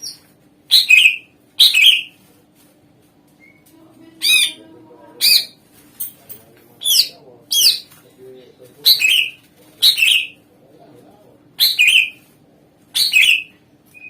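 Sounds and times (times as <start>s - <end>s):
bird sharp downward calls: 11.6s - 12.2s, 13.0s - 14.0s.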